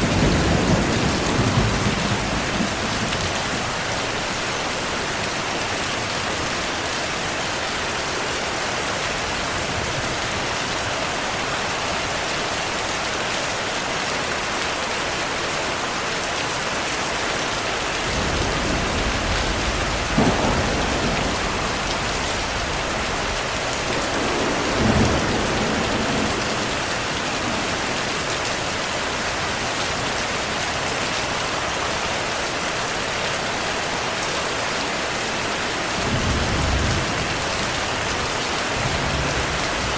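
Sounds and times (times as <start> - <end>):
thunder claps: 0.0 - 4.2, 18.0 - 28.5
thunder rumbling: 0.0 - 4.7, 18.0 - 28.8, 36.0 - 39.9
heavy rainfall: 0.0 - 39.9.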